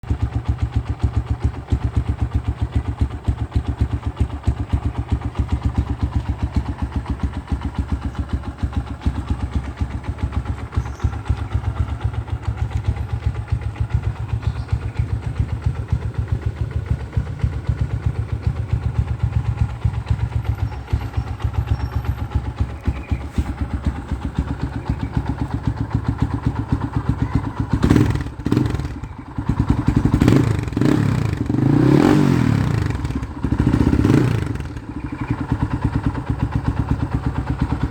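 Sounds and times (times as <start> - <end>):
motorcycle engine idling: 0.0 - 37.9.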